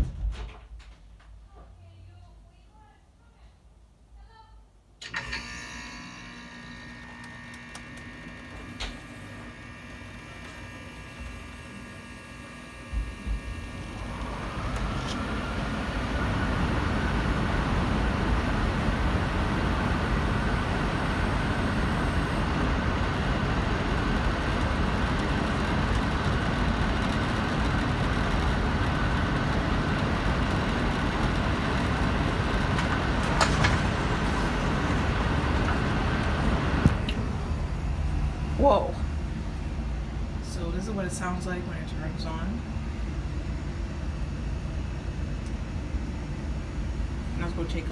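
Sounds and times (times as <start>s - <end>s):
blower air rushing with whine: 9.2s - 42.9s.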